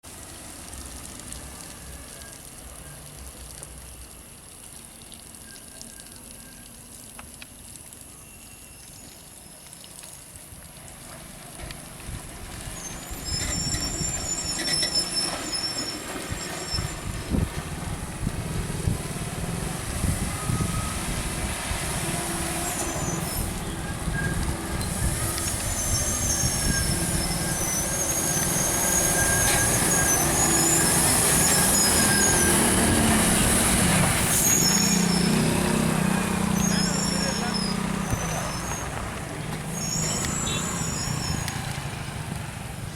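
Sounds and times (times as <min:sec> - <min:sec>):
brakes squealing: 0:08.1 - 0:09.8, 0:12.4 - 0:17.7, 0:18.8 - 0:42.7
heavy truck diesel engine labouring: 0:13.1 - 0:42.4.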